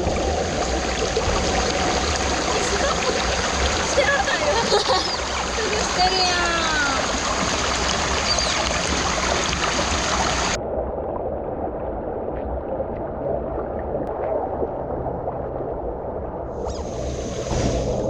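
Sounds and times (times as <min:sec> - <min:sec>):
rushing water: 0:00.0 - 0:10.6, 0:16.5 - 0:18.0.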